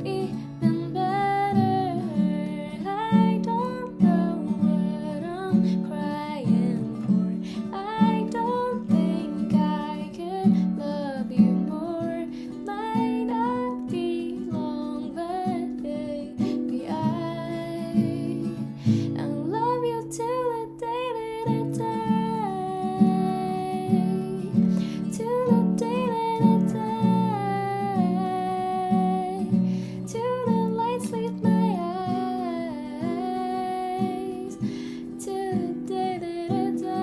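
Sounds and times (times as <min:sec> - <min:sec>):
acoustic guitar strumming: 0:00.0 - 0:37.0
person singing: 0:19.2 - 0:37.0.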